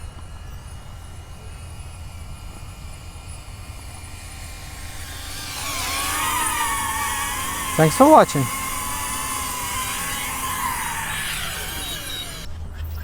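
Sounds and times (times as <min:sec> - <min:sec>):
drone propellers whining: 0:03.2 - 0:12.5.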